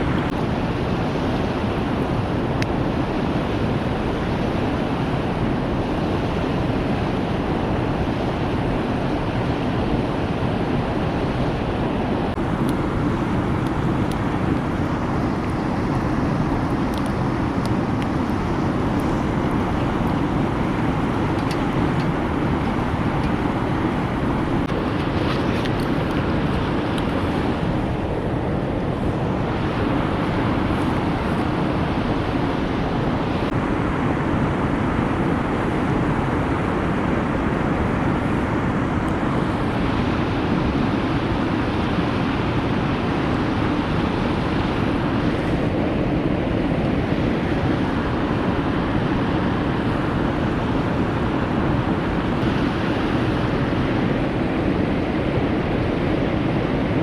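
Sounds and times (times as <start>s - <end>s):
wood fire burning: 12.4s - 27.9s.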